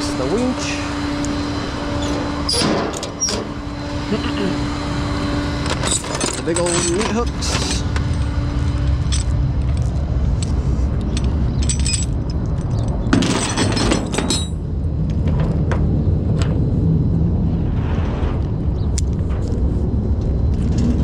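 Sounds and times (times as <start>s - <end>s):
tow truck engine running: 0.0s - 15.0s
chains and hooks rattling: 5.7s - 14.6s.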